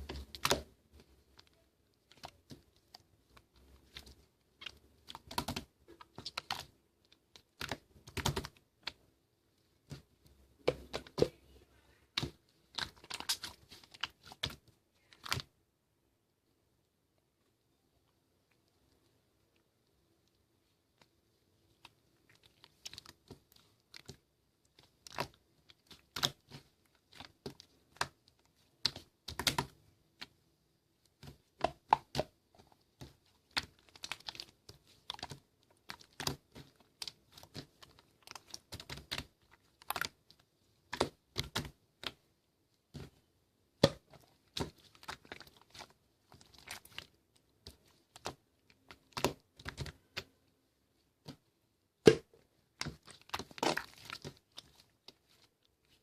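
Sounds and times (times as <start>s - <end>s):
slime clicking and popping: 3.8s - 9.0s, 22.4s - 30.4s, 52.0s - 54.7s.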